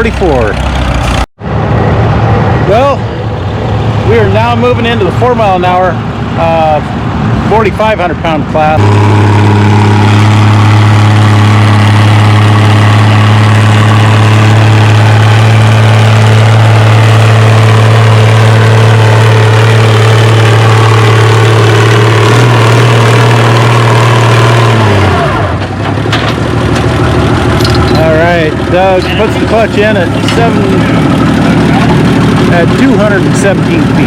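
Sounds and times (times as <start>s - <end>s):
tractor engine running under load: 8.8s - 34.0s.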